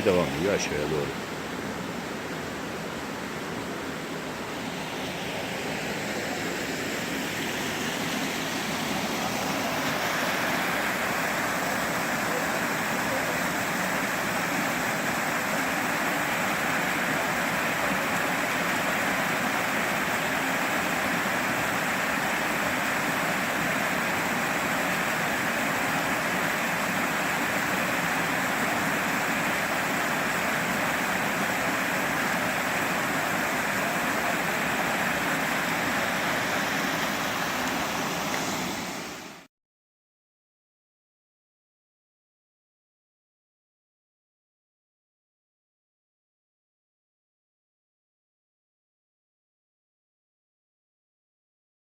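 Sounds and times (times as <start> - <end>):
water rushing over rocks: 0.0 - 39.5.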